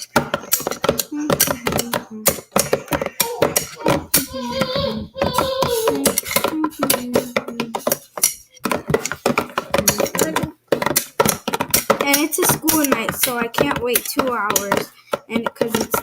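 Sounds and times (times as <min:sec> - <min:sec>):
person singing: 0:01.0 - 0:07.9.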